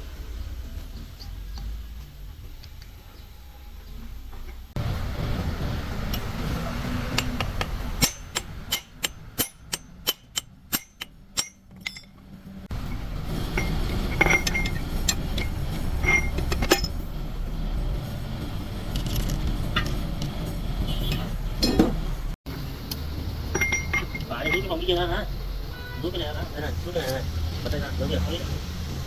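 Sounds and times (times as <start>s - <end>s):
steady low rumble: 0.0s - 27.6s
metal parts clinking: 7.1s - 17.1s, 18.8s - 20.5s, 23.5s - 24.8s.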